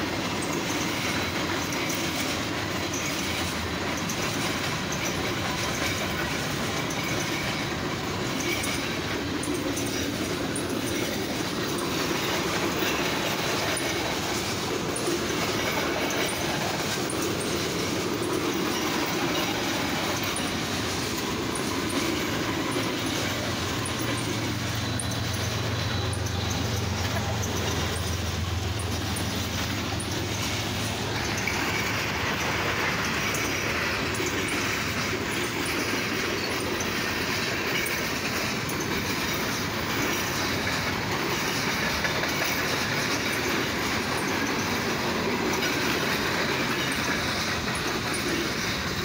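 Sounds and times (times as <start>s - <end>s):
steel wheels rumbling on rail: 0.0s - 49.0s
high wheel clicks: 0.1s - 49.0s
faint wheel squeal: 0.4s - 49.0s.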